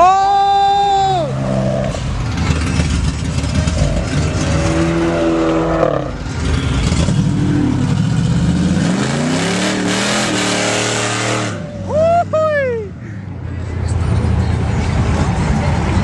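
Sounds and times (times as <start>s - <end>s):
car engine revving: 1.1s - 11.8s.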